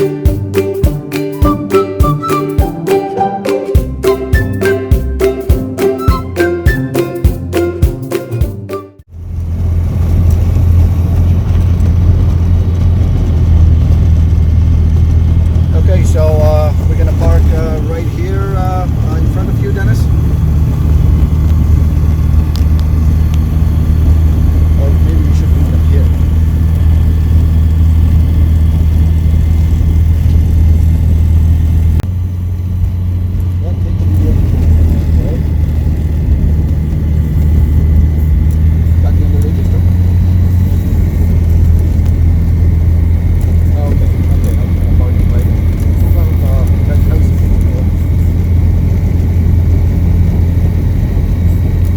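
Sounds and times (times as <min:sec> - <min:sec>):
background music: 0:00.0 - 0:09.0
ultralight plane engine drone: 0:09.0 - 0:51.9.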